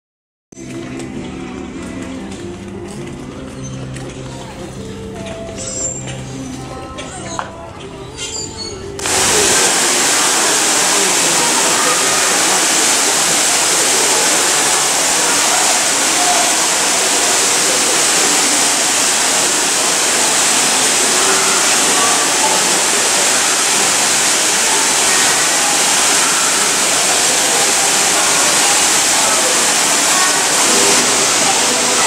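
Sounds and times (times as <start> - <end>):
indoor waterfall splashing: 9.0 - 32.0.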